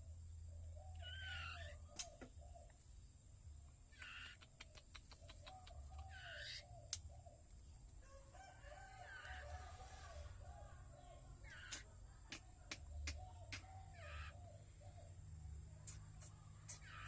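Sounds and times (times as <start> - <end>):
bird calls: 0.6 - 2.8, 3.9 - 7.7, 9.2 - 15.2, 15.9 - 17.0.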